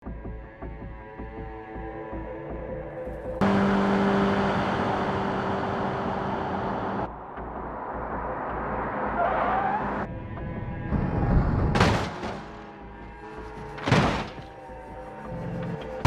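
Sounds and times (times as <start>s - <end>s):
car road and engine noise: 1.8s - 16.0s
wavering tyre squeal: 9.0s - 10.1s.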